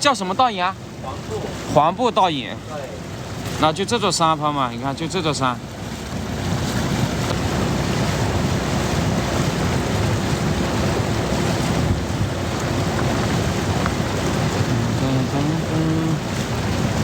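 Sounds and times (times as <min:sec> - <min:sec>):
water noise from raft: 0:00.0 - 0:17.0
wind on microphone: 0:05.8 - 0:17.0
faint motor hum: 0:12.2 - 0:17.0.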